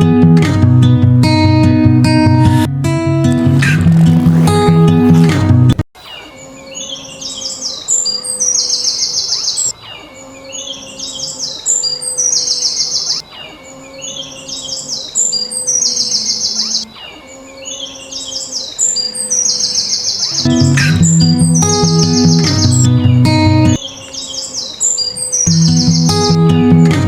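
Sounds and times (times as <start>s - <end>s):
songbird singing with trill: 6.0s - 26.9s.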